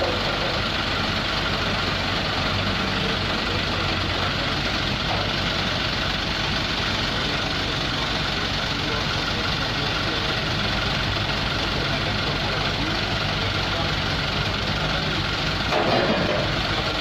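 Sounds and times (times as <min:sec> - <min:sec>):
crane engine running: 0:00.0 - 0:17.0.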